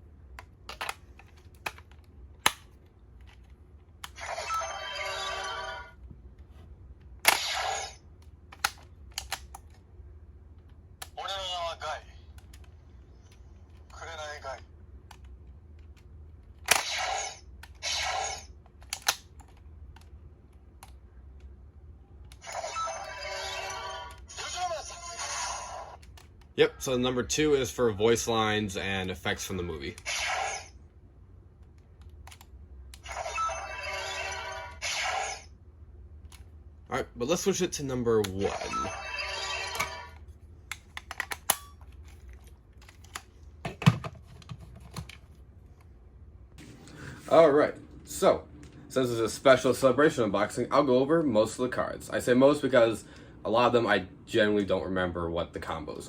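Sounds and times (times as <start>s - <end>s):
toy electronic sound effects: 4.2s - 5.9s, 22.4s - 26.0s, 33.1s - 35.5s, 38.5s - 40.2s.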